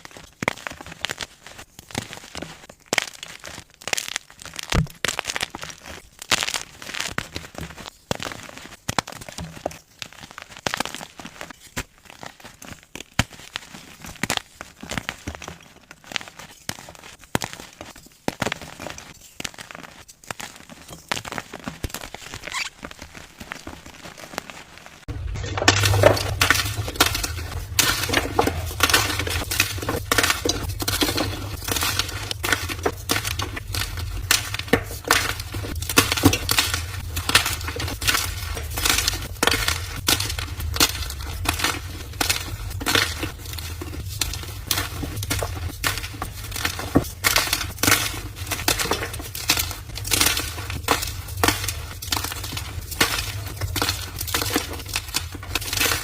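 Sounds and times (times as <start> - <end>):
chalk being crushed by hand: 0.0 - 25.1, 25.8 - 56.0
low hum: 25.1 - 34.7.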